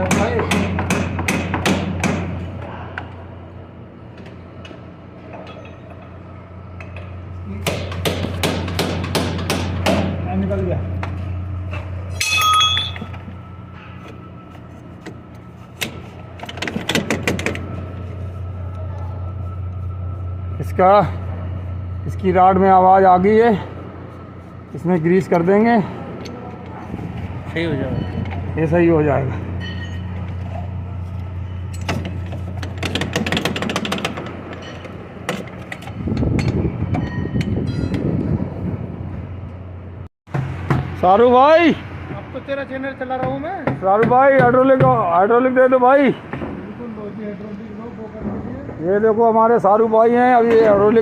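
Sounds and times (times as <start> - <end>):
motor humming: 5.9 - 40.0.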